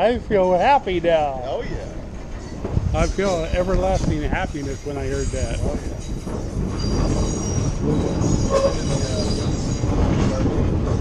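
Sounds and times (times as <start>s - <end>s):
train wheels rumbling on rails: 0.0s - 11.0s
high wheel squeal: 0.4s - 11.0s.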